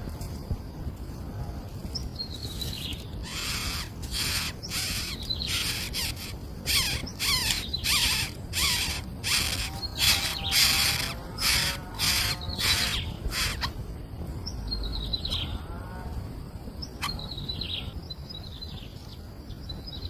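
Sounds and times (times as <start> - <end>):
nestling birds rasping calls: 2.0 - 13.8, 16.8 - 18.0.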